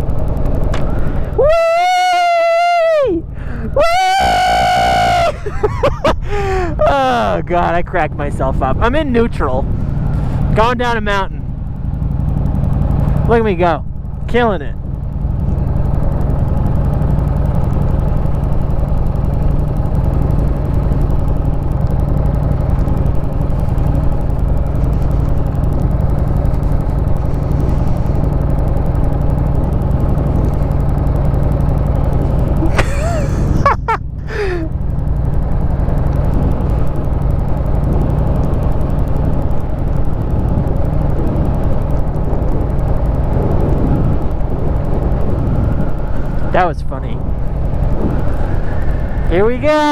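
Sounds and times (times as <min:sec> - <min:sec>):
motorcycle engine idling: 0:00.0 - 0:49.9
wind noise: 0:15.2 - 0:49.9.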